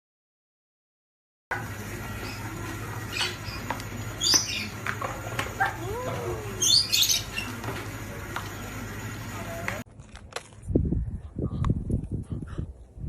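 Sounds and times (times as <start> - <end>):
steady low hum: 1.5 - 9.8
bird chirping: 2.2 - 4.8, 6.4 - 7.6.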